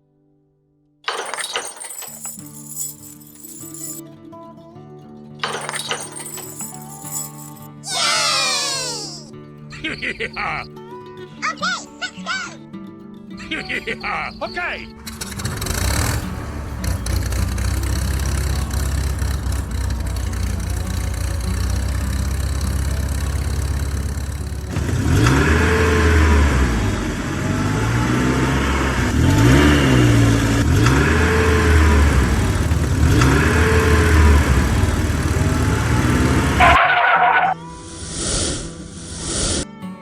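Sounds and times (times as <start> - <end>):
engine idling and revving: 15.0 - 37.4.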